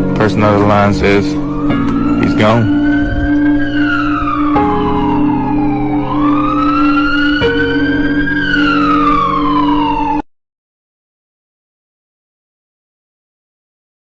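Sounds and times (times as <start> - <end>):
steady low drone: 0.0 - 10.2
emergency vehicle siren wailing: 0.0 - 10.3.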